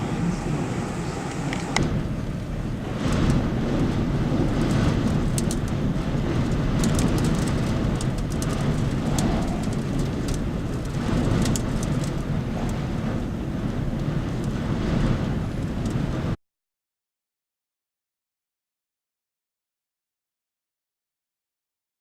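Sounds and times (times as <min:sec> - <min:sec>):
strong wind buffeting microphone: 0:00.0 - 0:16.4
light ticks and rattles: 0:03.0 - 0:16.0.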